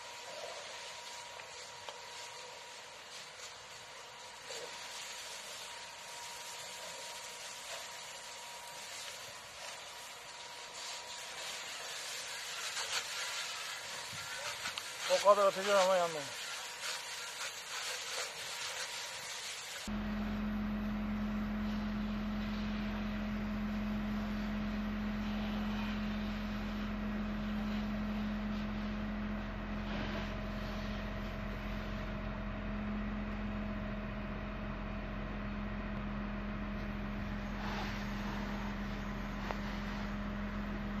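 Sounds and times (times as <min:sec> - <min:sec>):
engine humming steadily: 0:19.8 - 0:41.0.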